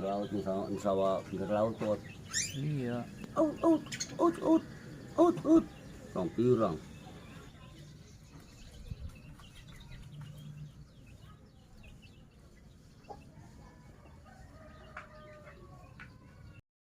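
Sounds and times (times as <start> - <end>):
faint bird calls: 1.3 - 7.8.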